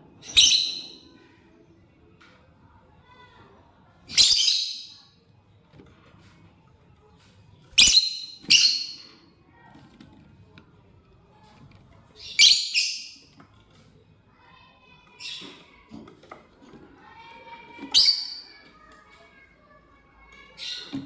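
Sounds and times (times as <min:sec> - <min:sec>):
lovebird shrill harsh calls: 0:12.2 - 0:13.2.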